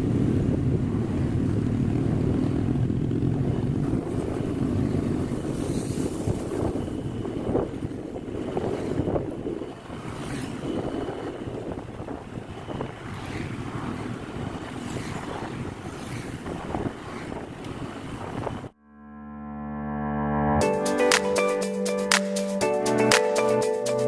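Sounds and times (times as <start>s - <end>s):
road and engine rumble: 0.0s - 18.8s
wind buffeting microphone: 0.0s - 18.8s.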